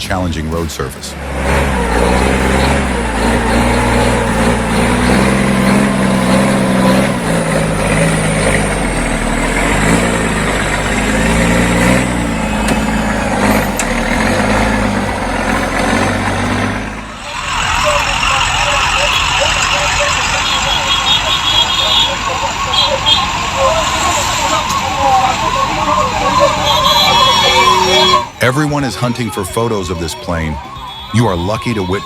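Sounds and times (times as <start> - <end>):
truck diesel engine labouring: 0.0 - 32.0.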